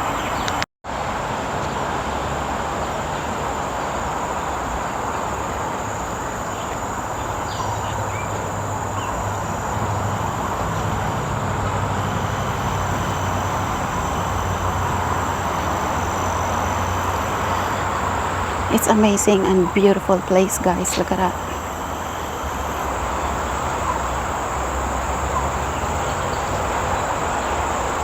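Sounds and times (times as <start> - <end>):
insect drone: 0.0 - 28.0
rushing noise: 0.0 - 28.0
low hum: 7.2 - 28.0.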